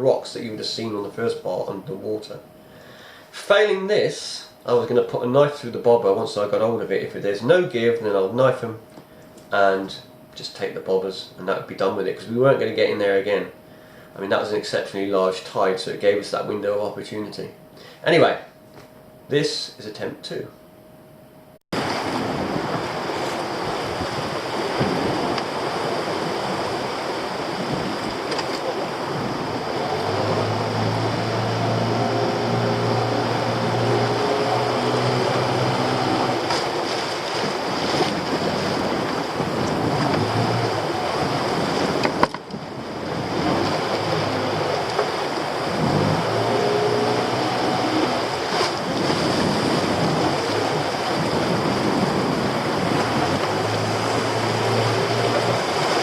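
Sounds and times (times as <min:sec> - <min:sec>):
boat engine: 0:21.7 - 0:56.0
surf washing around boat: 0:21.8 - 0:56.0
wind buffeting microphone: 0:21.8 - 0:56.0.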